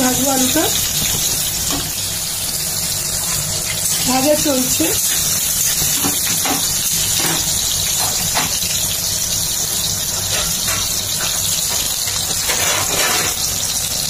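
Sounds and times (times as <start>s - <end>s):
potatoes sizzling in hot oil: 0.0s - 14.0s
metal spatula scraping pan: 12.0s - 13.5s.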